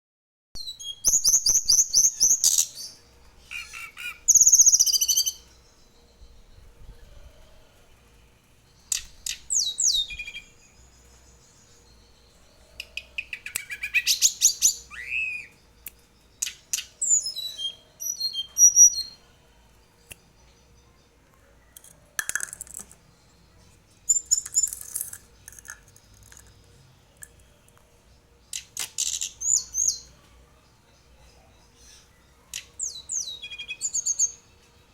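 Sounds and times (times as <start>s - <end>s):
songbird whistles and chirps: 0.6s - 7.6s, 8.8s - 10.8s, 11.6s - 19.2s, 28.5s - 30.4s, 31.2s - 34.5s.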